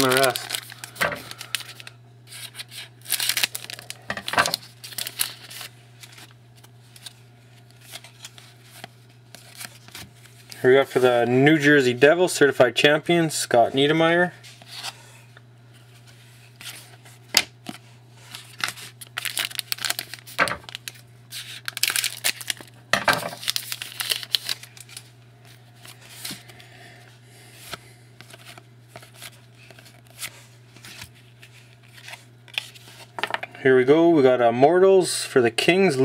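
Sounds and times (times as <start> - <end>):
wrapper tearing and crinkling: 0.0 - 10.6, 18.3 - 25.1
cards being handled: 0.0 - 11.1, 15.8 - 26.6, 27.5 - 33.5.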